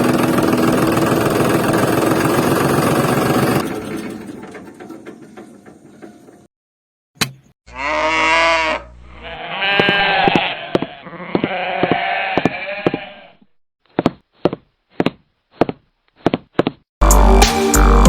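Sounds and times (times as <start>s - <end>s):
sheep bleating: 7.7s - 13.4s.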